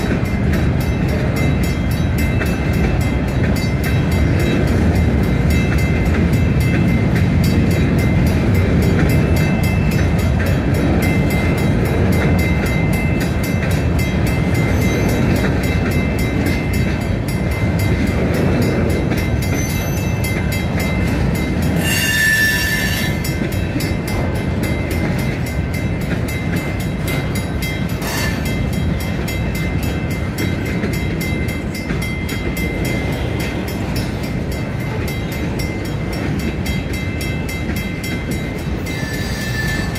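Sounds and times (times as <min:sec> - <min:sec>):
train wheels rumbling on rail: 0:00.0 - 0:39.9
high wheel squeal: 0:21.8 - 0:23.2, 0:38.8 - 0:39.9.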